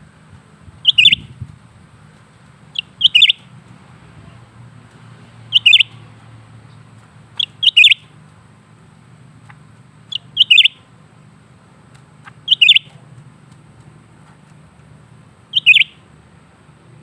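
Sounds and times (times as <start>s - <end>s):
bird giving sharp high chirps: 0.8s - 1.5s, 2.7s - 3.6s, 5.5s - 6.0s, 7.4s - 8.2s, 10.1s - 10.9s, 12.2s - 13.0s, 15.5s - 16.1s.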